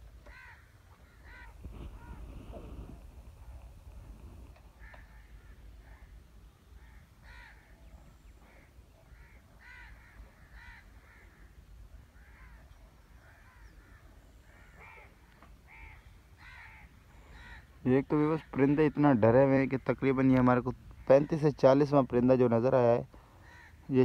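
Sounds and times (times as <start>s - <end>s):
harsh bird calls: 4.7s - 22.0s.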